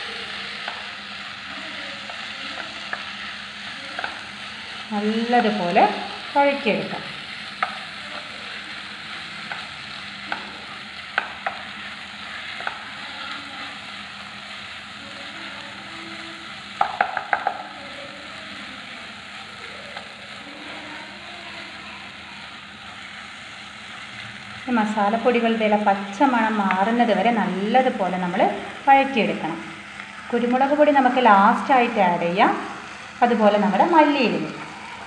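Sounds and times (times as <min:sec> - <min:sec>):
masala sizzling in a pan: 0:00.0 - 0:35.0
spatula tapping pan: 0:00.6 - 0:01.0, 0:02.0 - 0:04.5, 0:07.4 - 0:08.8, 0:09.4 - 0:11.9, 0:12.5 - 0:13.4, 0:16.7 - 0:17.8.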